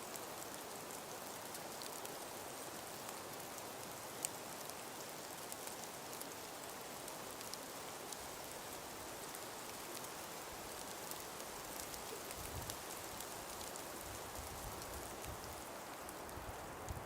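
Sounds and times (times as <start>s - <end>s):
breeze hissing through forest: 0.0s - 17.0s
light ticks and patters: 0.0s - 17.0s
low wind gusts: 12.3s - 12.8s, 13.4s - 17.0s.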